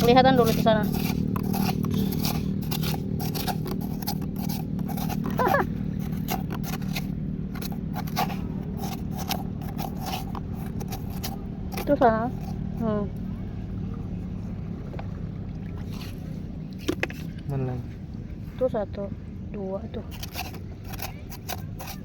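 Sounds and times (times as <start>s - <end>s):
crunching clicks and scrapes: 0.0s - 12.9s, 15.8s - 17.5s, 20.0s - 22.0s
low hum: 0.0s - 22.0s.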